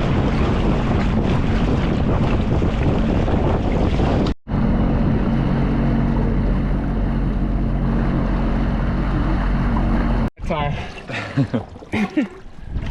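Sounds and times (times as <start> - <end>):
jet ski engine running: 0.0 - 10.3
wind rushing on microphone: 0.0 - 10.3, 12.6 - 12.9.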